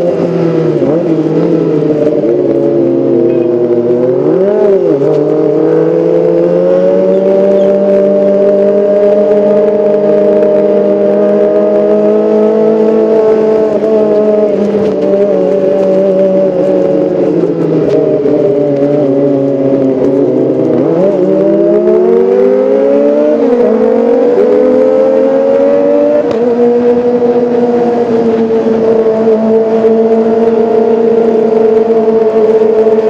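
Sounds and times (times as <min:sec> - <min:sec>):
motorcycle gear changes: 0:00.0 - 0:22.6
motorcycle engine running: 0:00.0 - 0:33.0.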